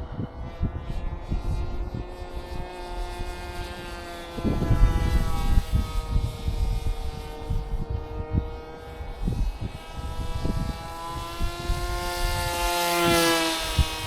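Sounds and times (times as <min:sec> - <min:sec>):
model plane motor whining: 0:00.0 - 0:14.0
wind buffeting microphone: 0:00.0 - 0:14.0.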